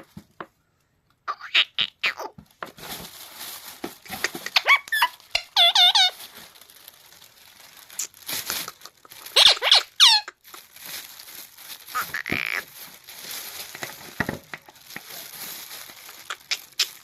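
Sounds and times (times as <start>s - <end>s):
parrot chirping and squeaking: 1.3s - 2.3s, 4.0s - 6.3s, 7.9s - 10.6s, 11.9s - 12.6s, 16.0s - 17.0s.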